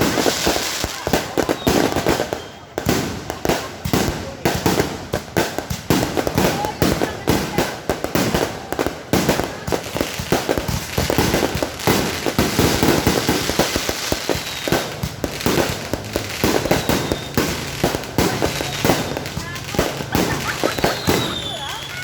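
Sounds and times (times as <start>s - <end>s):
faint firework whistles: 0.0s - 3.8s, 9.8s - 19.2s, 20.1s - 22.0s
fireworks cracking and banging: 0.0s - 22.0s.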